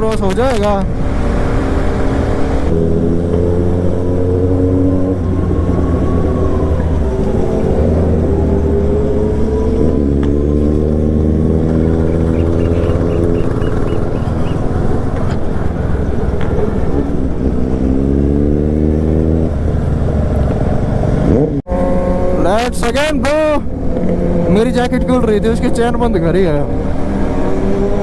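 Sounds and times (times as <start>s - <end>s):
motorcycle engine running: 9.2s - 15.0s.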